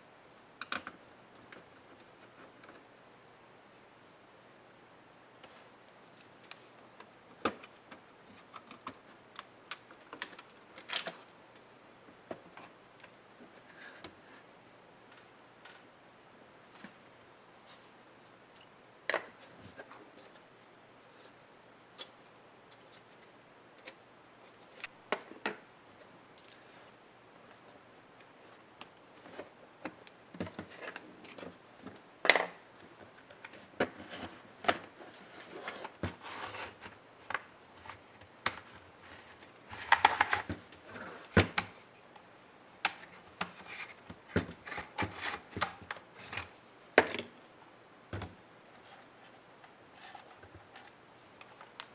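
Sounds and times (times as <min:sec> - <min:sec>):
scraping of laptop parts: 0:33.4 - 0:37.0, 0:38.6 - 0:41.4.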